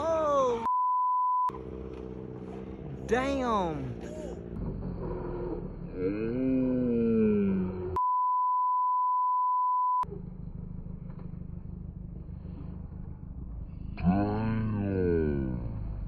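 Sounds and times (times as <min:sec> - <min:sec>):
censor bleep tone: 0:00.6 - 0:01.5, 0:08.0 - 0:10.1
motorcycle engine rumbling: 0:01.5 - 0:08.0, 0:10.0 - 0:16.0.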